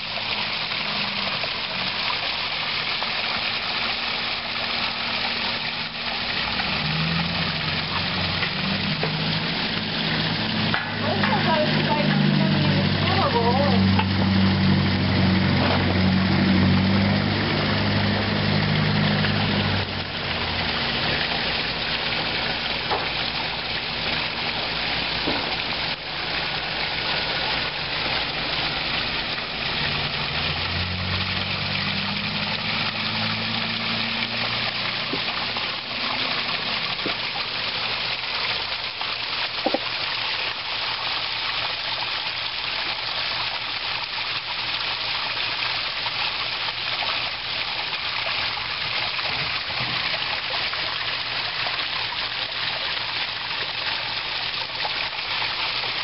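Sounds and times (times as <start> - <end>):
water splashing over rocks: 0.0 - 56.0.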